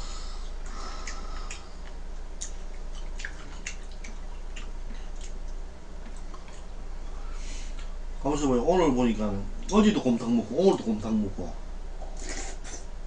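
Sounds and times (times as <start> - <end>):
steady low hum: 0.0 - 13.0
wet chewing and mouth clicks: 1.0 - 6.7.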